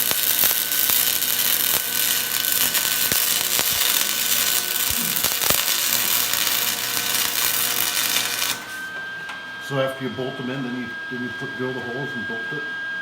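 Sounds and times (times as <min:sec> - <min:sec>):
welding crackling hiss with pops: 0:00.0 - 0:08.9.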